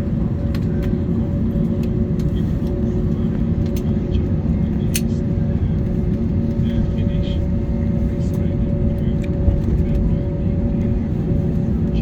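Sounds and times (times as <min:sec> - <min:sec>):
aircraft cabin low rumble: 0:00.0 - 0:12.0.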